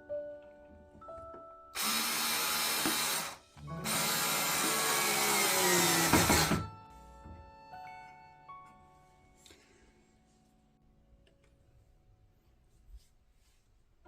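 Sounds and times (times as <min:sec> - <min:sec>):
power drill whining: 0:01.8 - 0:06.7.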